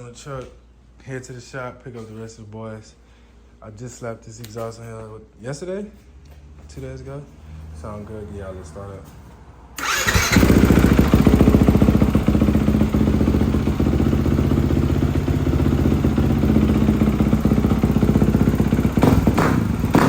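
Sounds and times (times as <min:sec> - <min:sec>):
dirt bike starting and idling: 0:09.8 - 0:20.0.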